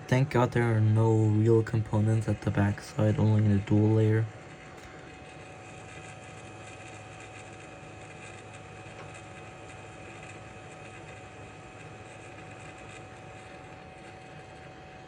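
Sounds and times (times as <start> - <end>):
hot air blower rushing: 0.0 - 4.3
faint steady whine: 0.0 - 15.0.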